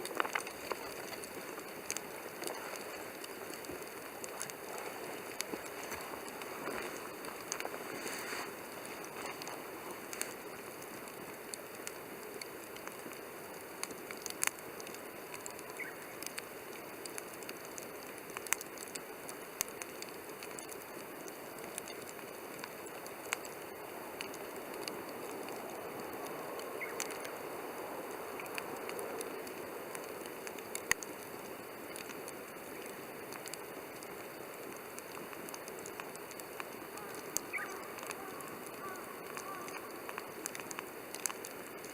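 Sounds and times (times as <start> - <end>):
campfire crackling and popping: 0.0 - 41.9.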